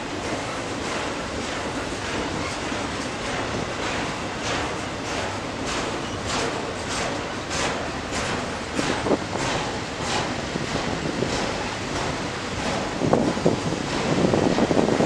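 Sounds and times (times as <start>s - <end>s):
train rolling past: 0.0s - 15.0s
wind on microphone: 8.7s - 15.0s.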